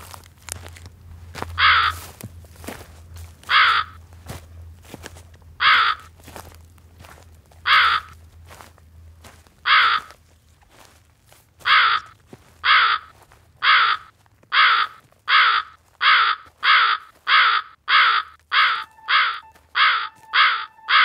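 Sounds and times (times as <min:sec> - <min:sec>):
harsh caw-like bird calls: 0:01.5 - 0:02.1, 0:03.4 - 0:04.0, 0:05.6 - 0:06.1, 0:07.6 - 0:08.2, 0:09.6 - 0:10.2, 0:11.6 - 0:21.0
steady musical tone: 0:18.6 - 0:21.0.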